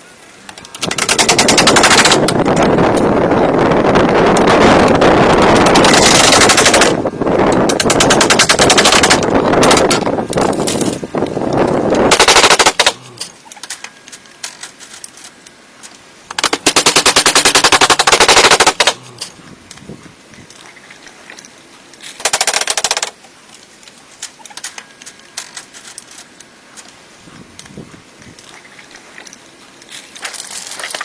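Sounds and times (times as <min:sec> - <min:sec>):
power tool rattling on wood: 0:00.7 - 0:03.1, 0:04.2 - 0:11.0, 0:22.2 - 0:23.2.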